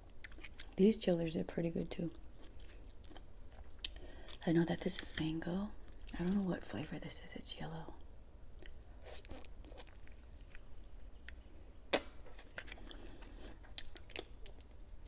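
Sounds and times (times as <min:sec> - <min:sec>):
wet chewing: 0:00.0 - 0:00.8, 0:02.1 - 0:04.4.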